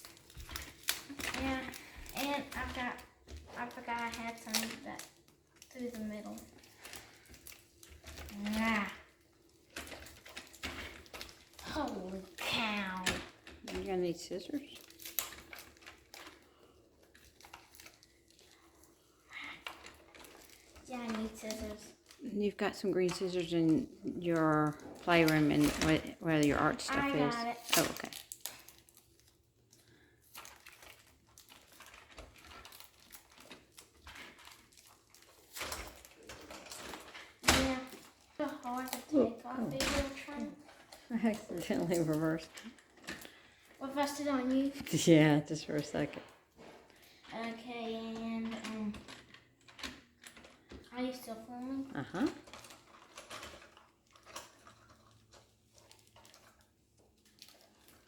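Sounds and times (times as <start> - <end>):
hands handling small objects: 48.3 - 58.0.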